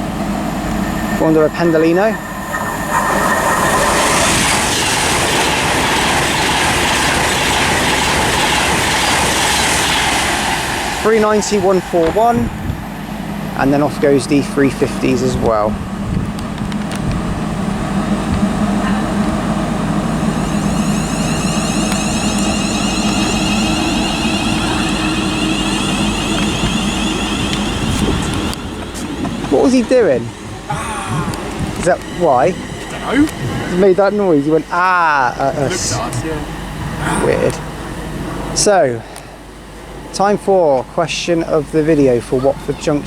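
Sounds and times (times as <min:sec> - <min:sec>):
high whine rising in pitch: 0:00.0 - 0:38.8
electric train passing: 0:00.0 - 0:43.0
wheels rushing on rail: 0:00.0 - 0:43.0.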